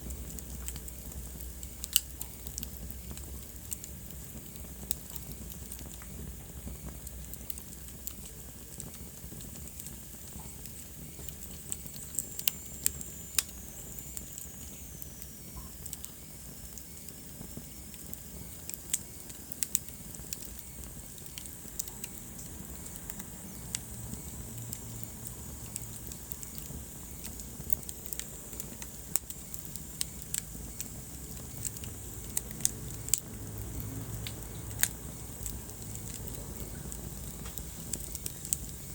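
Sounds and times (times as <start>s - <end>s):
low rumble of burning: 0.0s - 38.9s
wood fire crackling: 0.0s - 38.9s.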